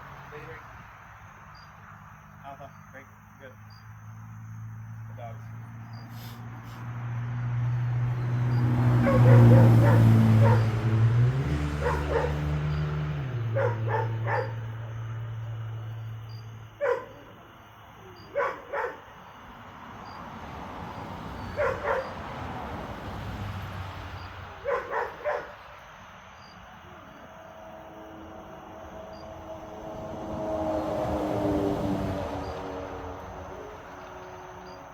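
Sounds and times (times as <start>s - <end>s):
low engine hum: 2.0s - 17.4s, 19.6s - 34.9s
dog barking: 8.9s - 11.0s, 11.6s - 12.9s, 13.5s - 14.9s, 16.7s - 19.3s, 21.4s - 22.3s, 24.6s - 25.7s.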